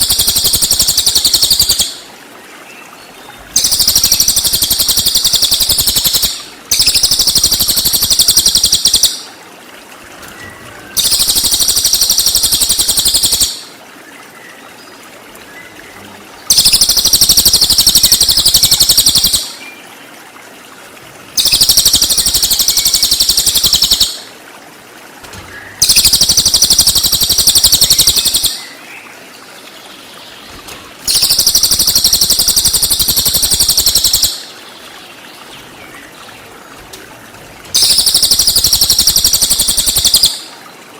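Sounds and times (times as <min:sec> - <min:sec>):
bird high-pitched chattering: 0:00.0 - 0:02.0, 0:03.6 - 0:09.3, 0:11.0 - 0:13.7, 0:16.5 - 0:19.5, 0:21.4 - 0:24.2, 0:25.8 - 0:28.6, 0:31.1 - 0:34.4, 0:37.8 - 0:40.5.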